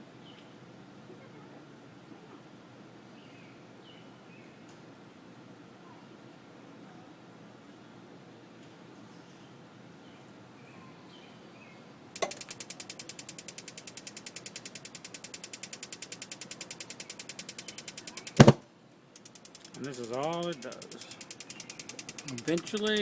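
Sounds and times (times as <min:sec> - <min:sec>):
spark igniter clicking rapidly: 0:12.2 - 0:18.6, 0:19.2 - 0:23.0.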